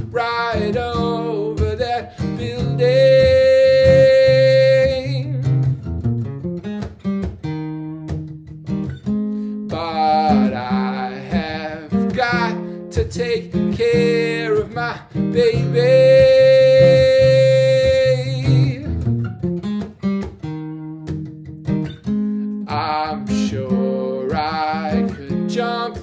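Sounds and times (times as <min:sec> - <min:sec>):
acoustic guitar strummed and picked: 0:00.0 - 0:26.0
person singing wordless notes: 0:09.7 - 0:18.9.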